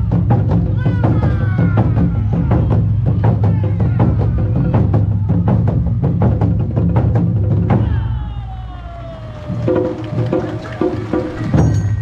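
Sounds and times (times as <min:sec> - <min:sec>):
heavy low drum: 0:00.0 - 0:08.7
taiko drums fast beat: 0:00.0 - 0:12.0.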